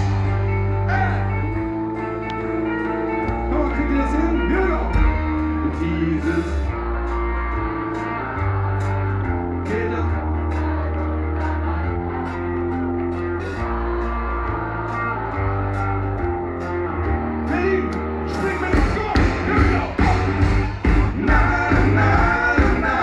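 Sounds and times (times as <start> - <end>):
live rock band playing: 0.0 - 23.0
person singing: 5.0 - 6.8, 21.1 - 23.0.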